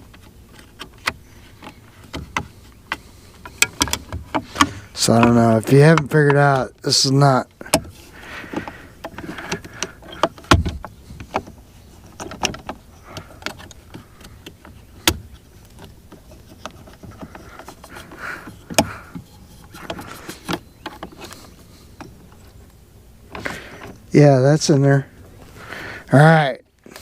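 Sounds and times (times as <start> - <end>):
plastic parts clicking and knocking: 0.0 - 6.7, 7.6 - 22.5.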